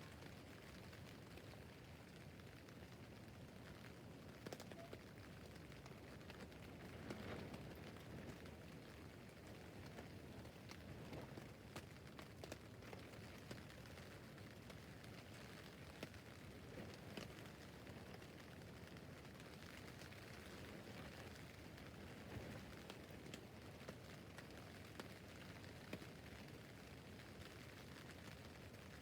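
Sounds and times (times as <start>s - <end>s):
light rain on tent: 0.0s - 29.0s.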